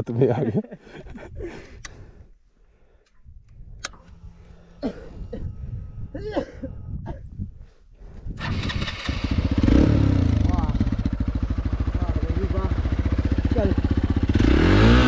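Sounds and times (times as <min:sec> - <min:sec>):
sharp clicks: 0:03.0 - 0:04.4
cough-like vocal sound: 0:04.8 - 0:05.5, 0:06.1 - 0:07.3
motorcycle engine running unevenly: 0:09.2 - 0:15.0.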